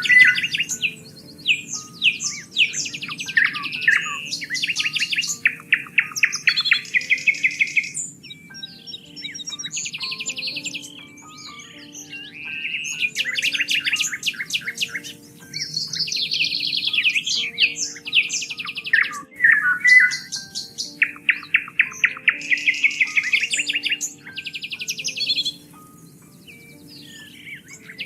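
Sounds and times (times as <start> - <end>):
songbirds trilling and chirping: 0.0 - 28.0.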